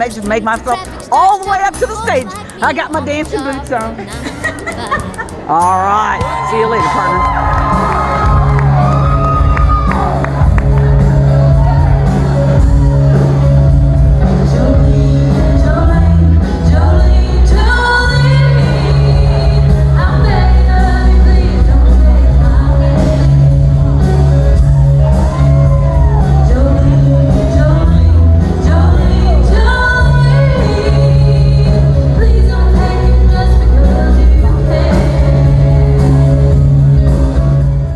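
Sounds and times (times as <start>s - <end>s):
woman singing: 0.0s - 7.4s.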